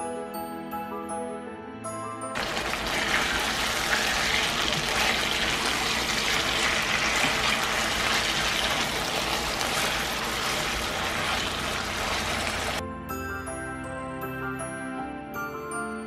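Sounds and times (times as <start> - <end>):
chicken sizzling in oil: 2.4 - 12.8.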